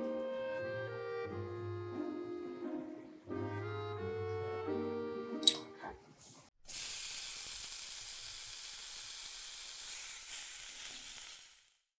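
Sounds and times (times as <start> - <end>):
food sizzling in a pan: 6.6 - 12.0.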